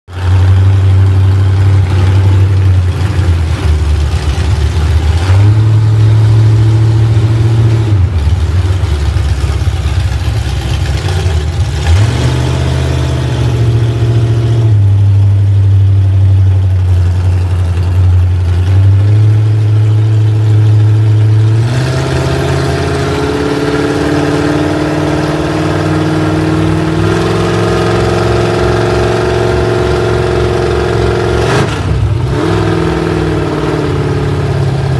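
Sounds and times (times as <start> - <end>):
vehicle engine on board: 0.1 - 34.9.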